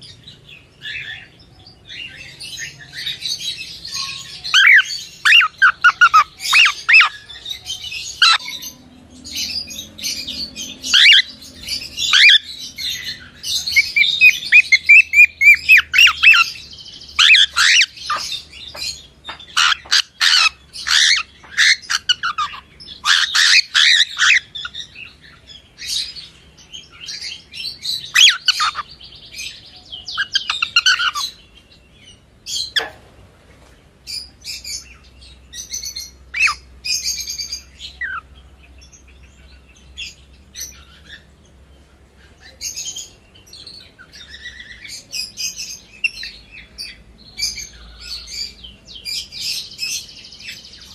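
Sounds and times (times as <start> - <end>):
cockatiel chirping and squawking: 4.0 - 7.3, 8.2 - 8.7, 10.9 - 13.1, 13.8 - 16.5, 17.2 - 18.4, 19.6 - 24.8, 28.1 - 28.9, 30.2 - 31.4, 35.8 - 36.6.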